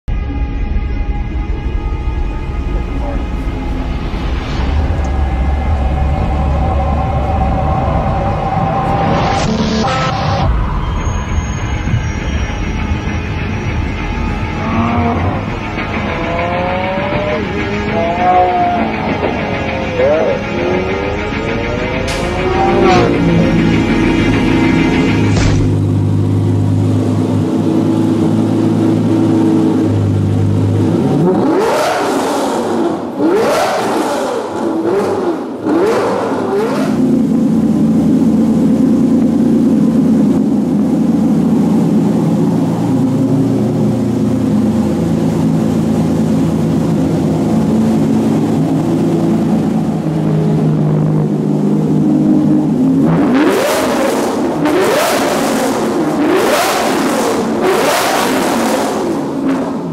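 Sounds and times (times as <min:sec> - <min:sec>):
sports car engine revving: 0:14.6 - 0:59.9.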